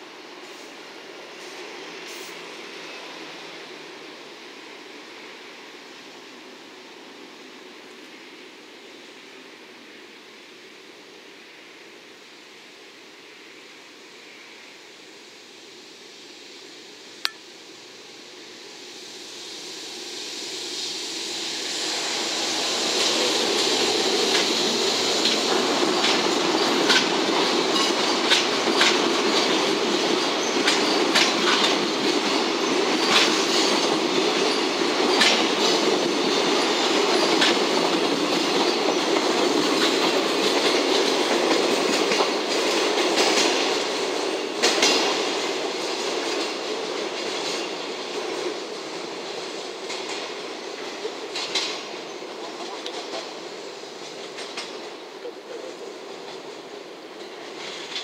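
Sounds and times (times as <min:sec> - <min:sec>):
freight train passing: 0:00.0 - 0:58.0
wheels running on rail: 0:21.6 - 0:58.0
wheels clicking over rail joints: 0:25.2 - 0:48.3.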